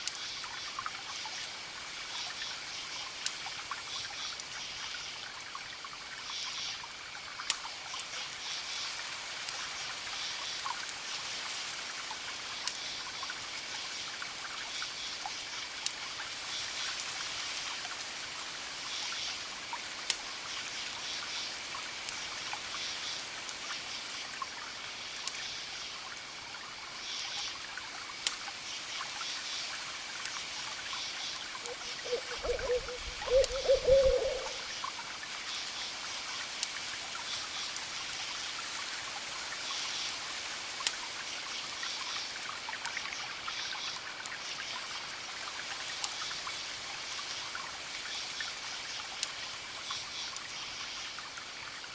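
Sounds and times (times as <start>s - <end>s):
campfire crackling: 6.8s - 39.1s
crickets chirping: 30.5s - 34.9s.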